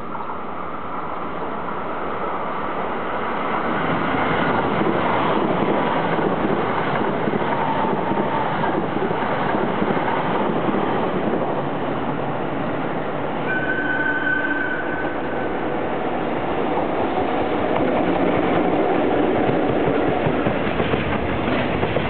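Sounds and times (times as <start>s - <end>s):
freight train rolling rumble: 0.0s - 22.0s
wind noise on microphone: 3.3s - 13.4s.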